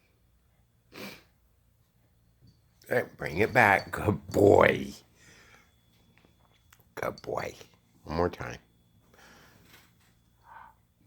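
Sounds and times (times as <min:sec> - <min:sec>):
faint breathy sound: 0:05.0 - 0:05.9, 0:09.0 - 0:11.0.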